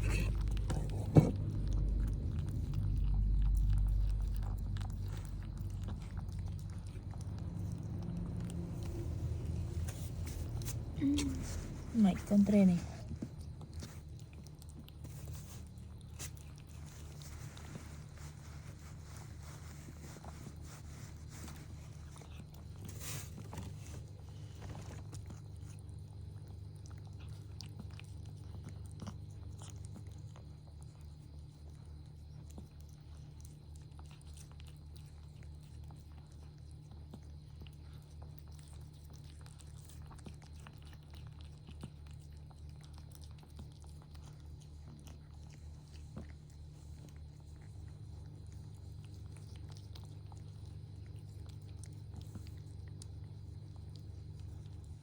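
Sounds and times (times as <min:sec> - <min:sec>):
low pulsing hum: 0:00.0 - 0:28.0
cat chewing and licking: 0:00.0 - 0:55.0.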